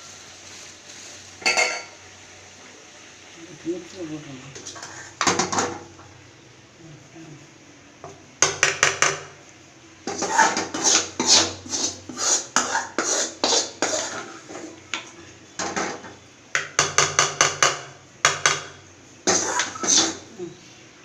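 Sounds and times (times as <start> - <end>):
metal utensils and pots clattering: 1.4 - 2.0, 4.6 - 5.9, 10.1 - 14.8, 15.6 - 20.3.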